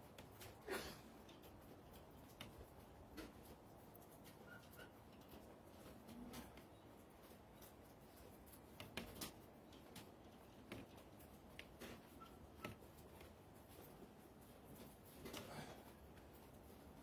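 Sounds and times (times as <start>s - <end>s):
faint clicks and taps: 1.2s - 17.0s.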